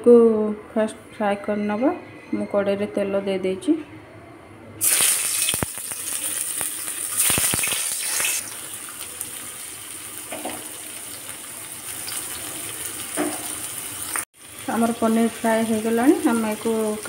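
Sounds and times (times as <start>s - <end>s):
paneer sizzling in hot oil: 4.8s - 17.0s.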